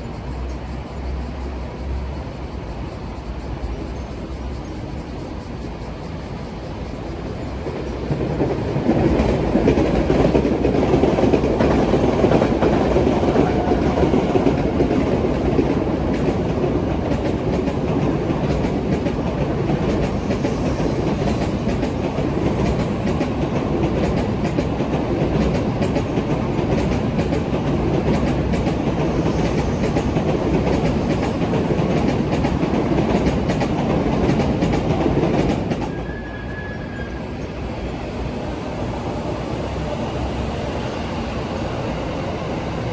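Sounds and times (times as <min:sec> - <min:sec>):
train wheels rumbling and clicking: 0:00.0 - 0:42.9.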